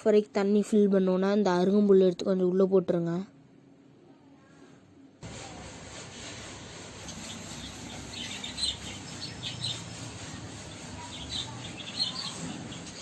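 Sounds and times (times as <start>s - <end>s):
budgerigars chirping: 7.1s - 10.0s.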